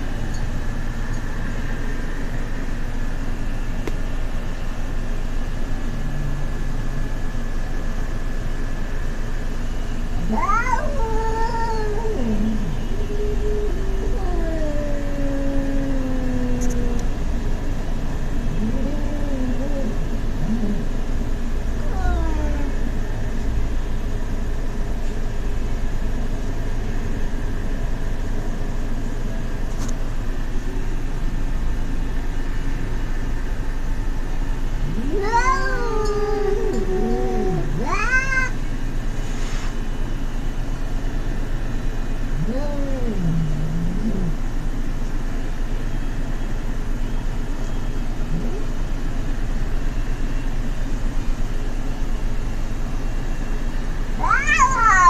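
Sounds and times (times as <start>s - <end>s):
cats yowling: 10.2s - 17.2s, 18.5s - 21.0s, 21.8s - 23.0s, 34.8s - 38.7s, 42.3s - 44.6s, 48.3s - 48.8s, 54.2s - 55.0s.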